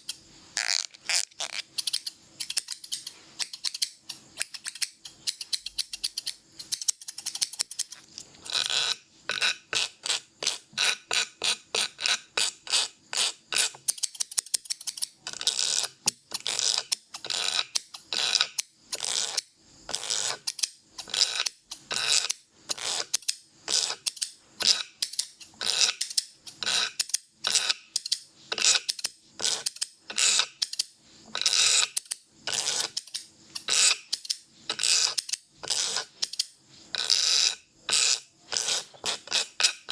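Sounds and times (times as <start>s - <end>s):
scissors snipping hair: 0.0s - 8.2s.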